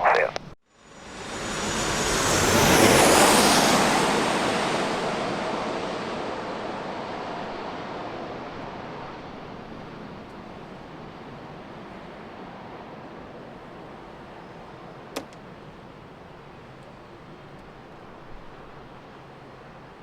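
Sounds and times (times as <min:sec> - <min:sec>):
jet airliner passing: 0:00.0 - 0:19.8
high falling engine whine: 0:00.8 - 0:08.5.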